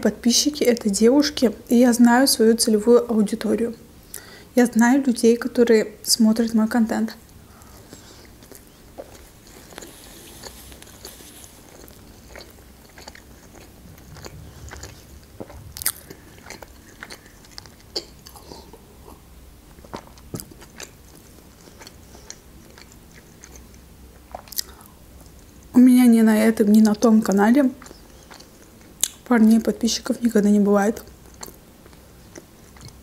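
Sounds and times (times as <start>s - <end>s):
chewing soft bread: 7.3s - 25.7s, 26.6s - 29.6s, 30.9s - 33.0s.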